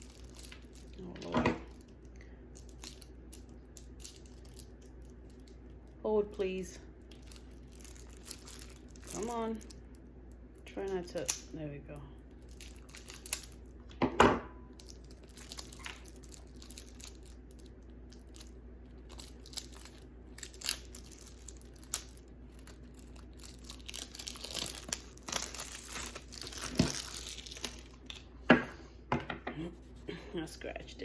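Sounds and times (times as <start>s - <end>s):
packaging tearing and crinkling: 0.0s - 2.0s, 2.6s - 5.6s, 7.1s - 9.9s, 12.4s - 13.8s, 14.8s - 28.2s
sharp snaps and knocks: 11.1s - 11.6s.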